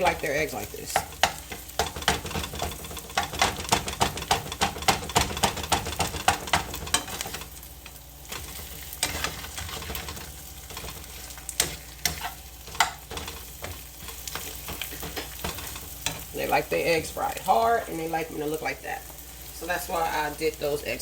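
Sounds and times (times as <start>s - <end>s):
eggs sizzling in a pan: 0.0s - 21.0s
utensil scraping and tapping pan: 0.9s - 7.5s, 8.3s - 16.3s.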